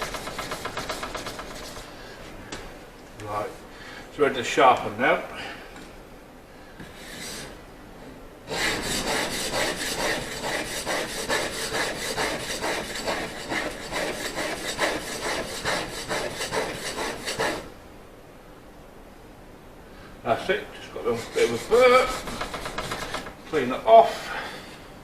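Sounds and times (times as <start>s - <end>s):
chisel rubbing on oil stone: 0.0s - 2.0s, 8.5s - 17.7s, 20.8s - 23.4s.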